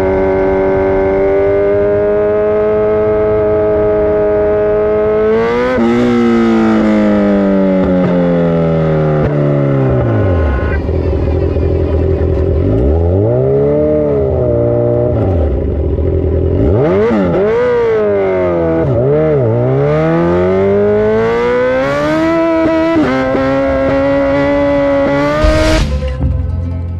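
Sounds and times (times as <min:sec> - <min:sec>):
dirt bike engine revving: 0:16.6 - 0:26.4.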